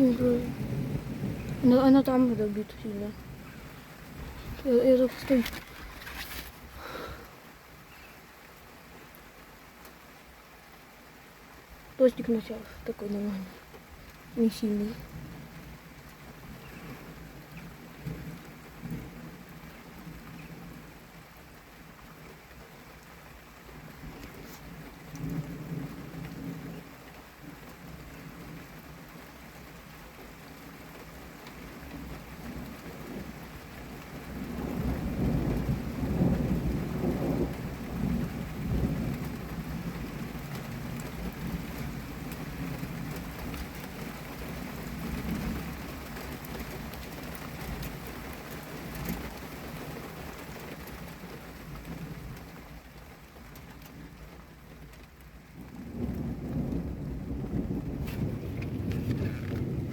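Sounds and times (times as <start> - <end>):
rolling thunder: 0.0 - 7.2, 34.3 - 42.0, 55.6 - 59.9
moderate rain falling: 0.0 - 59.9.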